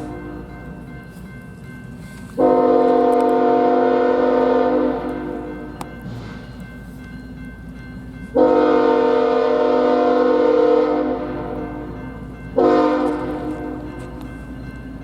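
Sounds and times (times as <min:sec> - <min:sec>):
low locomotive rumble: 0:00.0 - 0:15.0
locomotive air horn blasts: 0:02.4 - 0:05.8, 0:08.4 - 0:12.0, 0:12.6 - 0:14.2.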